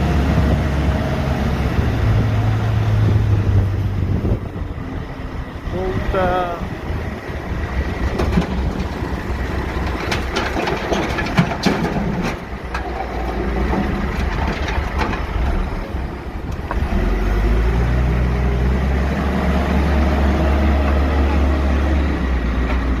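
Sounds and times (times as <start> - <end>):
backhoe engine running: 0.0 - 23.0
rocks clattering and knocking: 8.0 - 15.8.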